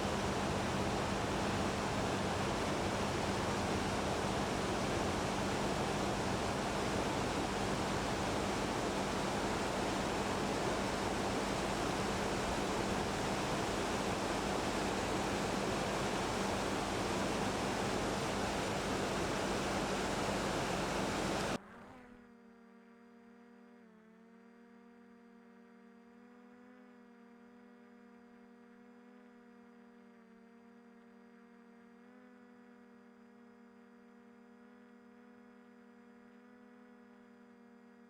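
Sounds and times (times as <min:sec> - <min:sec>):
faint steady tones: 0:00.0 - 0:21.6
flowing water rushing: 0:00.0 - 0:21.6
low hum: 0:00.0 - 0:21.6.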